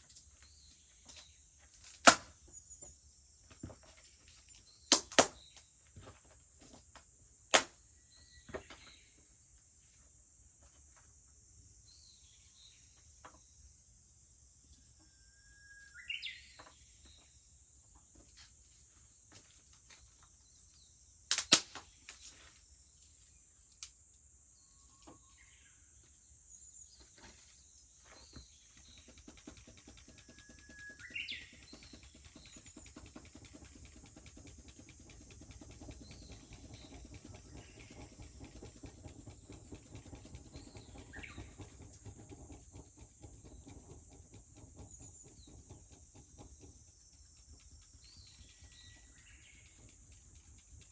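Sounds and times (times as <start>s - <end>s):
bush warbler singing: 28.2s - 50.9s.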